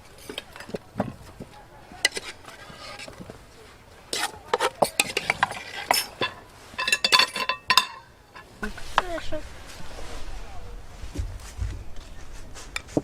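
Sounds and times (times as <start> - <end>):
cutlery and dishes clinking: 2.0 - 3.3, 4.1 - 8.5.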